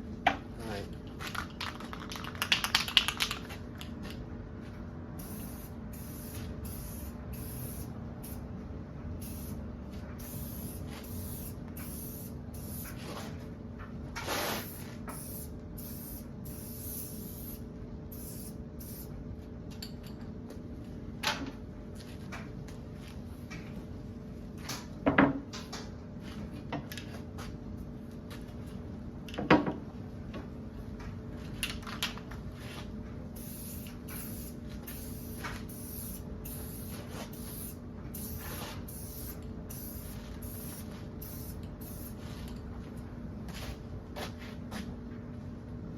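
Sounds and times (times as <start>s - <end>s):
spray can hissing bursts: 5.2s - 8.4s, 9.2s - 9.6s, 10.2s - 13.0s, 14.2s - 17.6s, 33.4s - 42.2s.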